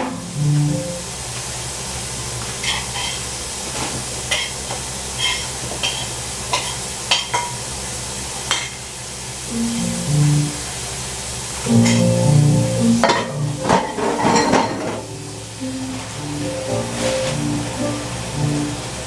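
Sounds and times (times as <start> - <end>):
steady hiss: 0.0 - 19.0
dishes and utensils clinking: 5.2 - 7.6, 11.7 - 18.1.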